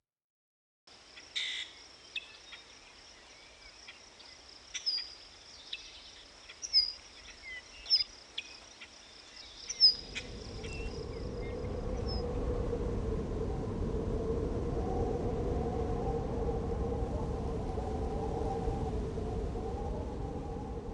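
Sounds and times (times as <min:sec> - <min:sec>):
high insect drone: 0:00.9 - 0:13.6
bird chirps: 0:01.2 - 0:12.2
low rumbling drone: 0:09.8 - 0:20.9.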